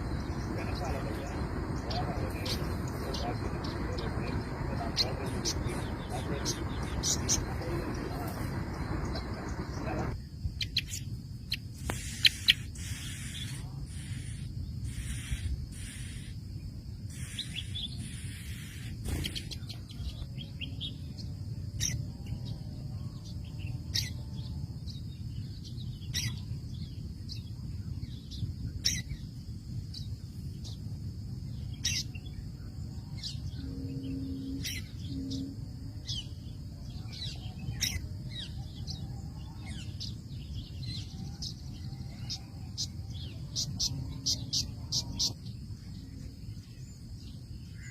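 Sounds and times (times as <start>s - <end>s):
small bird chirping: 0.0s - 16.4s, 17.1s - 47.9s
steady high hiss: 0.0s - 19.8s
low background rumble: 0.0s - 47.9s.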